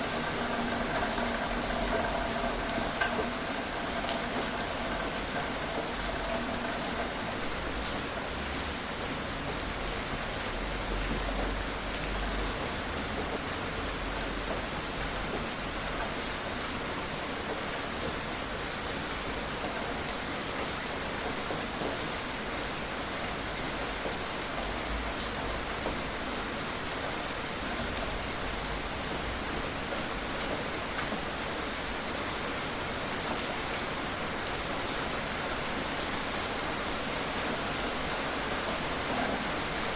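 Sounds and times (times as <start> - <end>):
raindrop ticks: 0.0 - 8.7
gentle rain hissing: 0.0 - 39.9.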